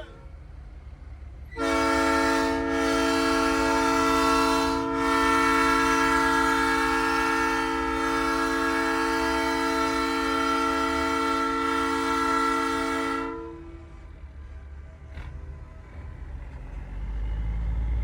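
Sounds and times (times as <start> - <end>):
air horn chord: 1.6 - 13.7.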